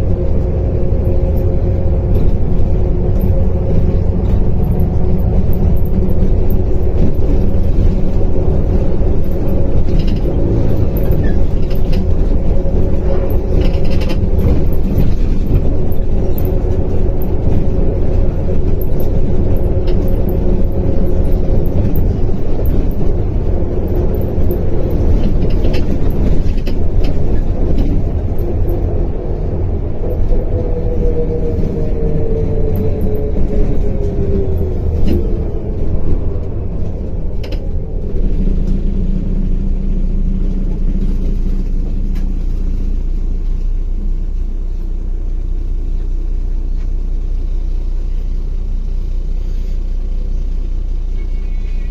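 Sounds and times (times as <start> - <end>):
bus engine and road rumble: 0.0 - 51.9
clicks and rattles: 2.1 - 23.2.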